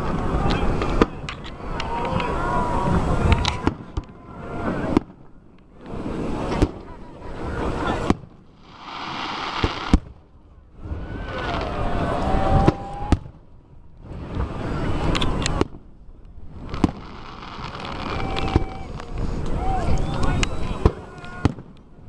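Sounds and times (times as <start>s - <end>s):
fireworks bursting with booms: 2.9s - 5.3s, 7.6s - 13.4s, 14.0s - 21.8s
rushing noise: 8.6s - 10.0s.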